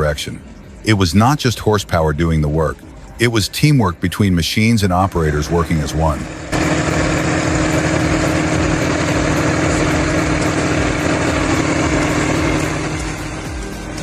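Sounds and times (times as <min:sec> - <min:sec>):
heavy tractor engine running: 0:04.5 - 0:14.0.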